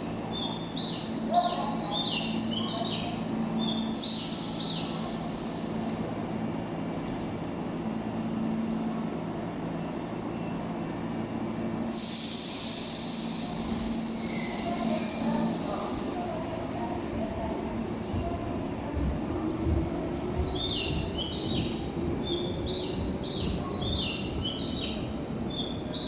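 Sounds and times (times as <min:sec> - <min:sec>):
electric train humming: 0:01.6 - 0:25.5
burst of hiss: 0:03.9 - 0:06.2, 0:11.9 - 0:16.1.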